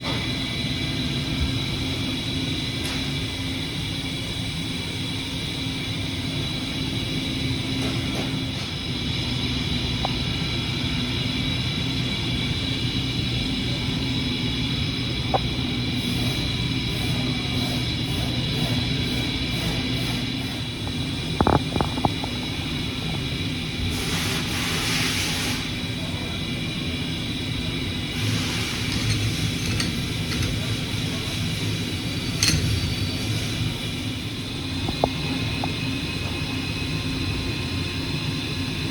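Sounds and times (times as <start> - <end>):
milling machine drone and whine: 0.0 - 38.9
hiss: 23.9 - 25.9.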